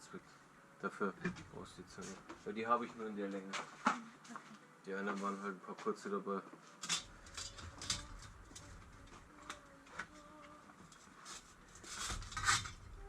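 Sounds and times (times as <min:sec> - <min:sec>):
metallic clicks and knocks: 0:06.8 - 0:08.7.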